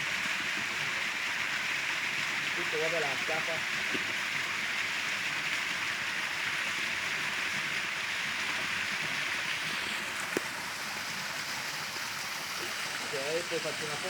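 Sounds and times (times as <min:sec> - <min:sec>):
creek water rushing over rocks: 0:00.0 - 0:14.0.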